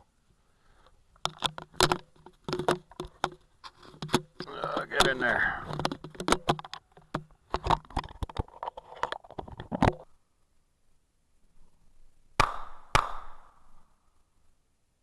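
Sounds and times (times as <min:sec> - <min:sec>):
case clicking and rustling: 0:01.2 - 0:10.1
muffled pistol shots: 0:12.4 - 0:13.7.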